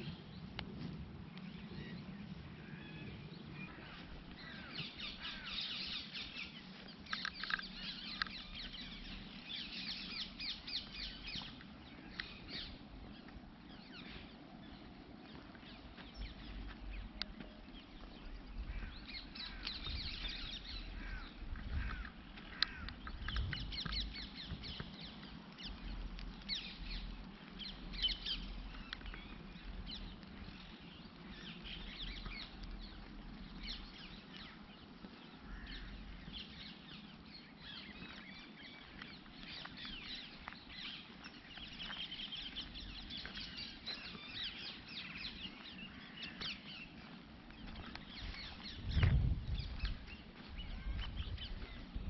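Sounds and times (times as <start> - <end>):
small birds chirping: 0.0 - 52.0
steady low rumble: 0.0 - 52.0.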